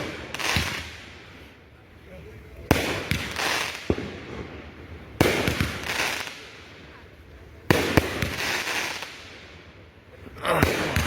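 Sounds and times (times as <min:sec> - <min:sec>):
firework bangs: 0:00.0 - 0:01.4, 0:02.6 - 0:07.0, 0:07.6 - 0:09.7, 0:10.5 - 0:11.0
firework crackling burst: 0:00.0 - 0:01.6, 0:02.4 - 0:11.0.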